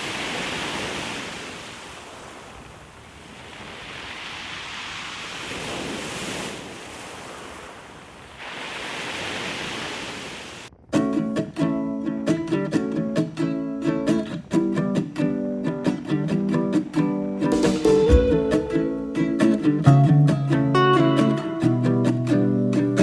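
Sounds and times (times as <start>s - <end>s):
sea waves breaking on shore: 0.0s - 13.6s
acoustic guitar music: 10.9s - 23.0s.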